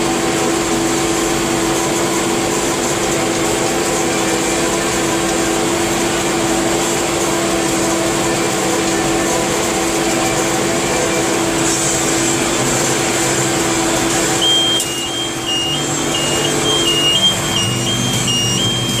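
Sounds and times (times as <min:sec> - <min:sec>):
tractor and hay baler running: 0:00.0 - 0:19.0
two-tone electronic alarm beeping: 0:14.2 - 0:19.0.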